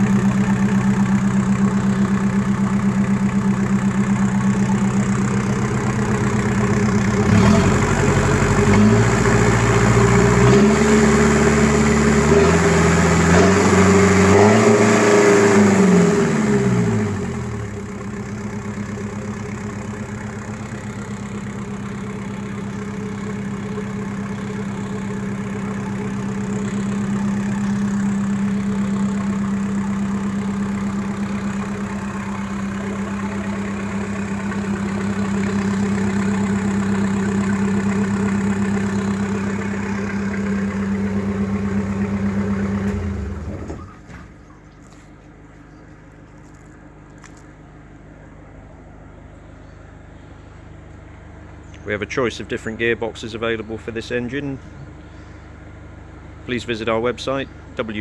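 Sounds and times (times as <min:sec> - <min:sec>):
diesel boat engine revving: 0:00.0 - 0:44.6.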